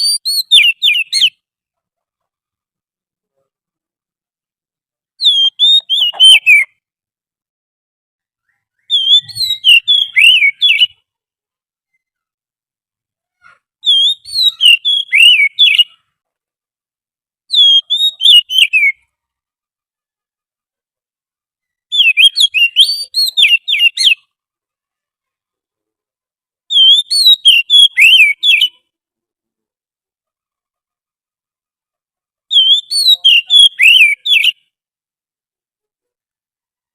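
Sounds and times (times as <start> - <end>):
bird whistling song: 0.0 - 1.4, 5.2 - 6.8, 8.4 - 11.1, 13.8 - 16.1, 17.5 - 19.2, 21.6 - 24.4, 26.7 - 28.9, 32.5 - 34.7.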